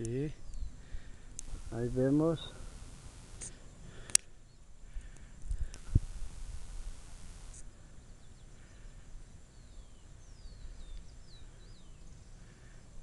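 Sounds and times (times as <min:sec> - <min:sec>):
steady low rumble: 0:00.9 - 0:04.0, 0:05.0 - 0:07.6
brief hiss: 0:01.4 - 0:04.2, 0:05.6 - 0:07.7.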